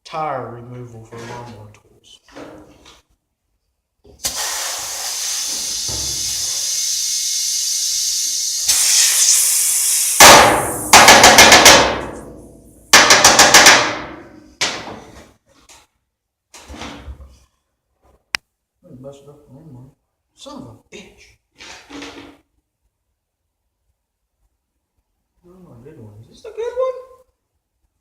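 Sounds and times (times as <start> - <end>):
compressed air hissing: 4.2 - 11.1
pneumatic air tool hammering: 4.2 - 12.3, 12.9 - 14.1.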